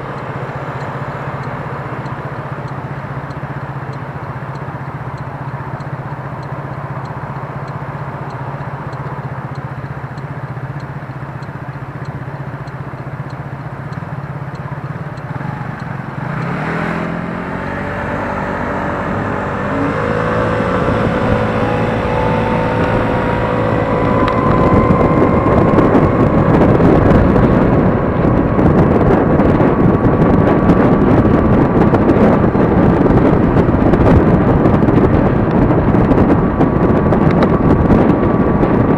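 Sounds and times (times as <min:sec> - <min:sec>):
electric scooter motor whine: 0:00.0 - 0:38.9
traffic hum: 0:00.0 - 0:38.9
wind rushing over microphone: 0:15.2 - 0:38.9.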